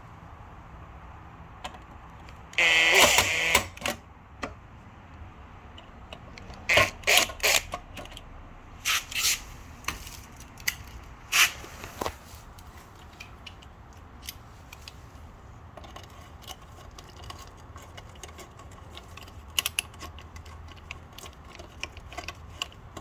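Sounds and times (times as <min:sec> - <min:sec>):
loud rasping squeak: 0:02.6 - 0:03.7.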